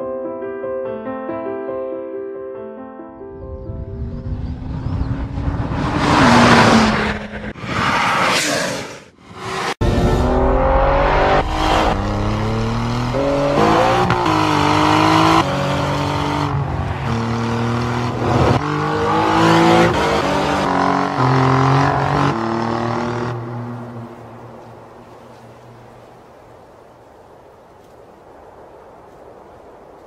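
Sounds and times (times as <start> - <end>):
car engine revving hard: 9.8 - 23.4.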